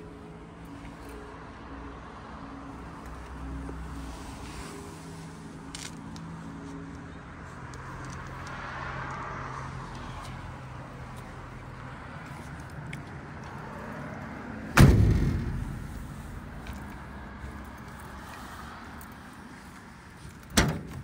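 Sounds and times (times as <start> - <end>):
heavy vehicle door slamming: 14.7 - 16.1, 20.5 - 21.0.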